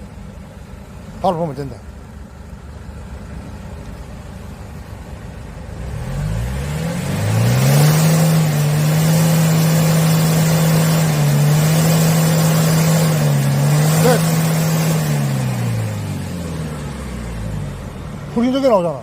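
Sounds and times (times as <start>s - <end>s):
diesel engine idling and revving: 0.0s - 19.0s.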